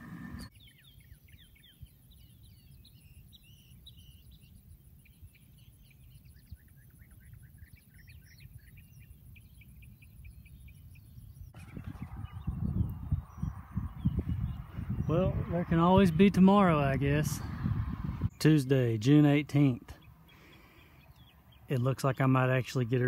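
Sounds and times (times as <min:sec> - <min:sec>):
small birds chirping: 0:00.0 - 0:23.0
low rumble: 0:11.6 - 0:18.4.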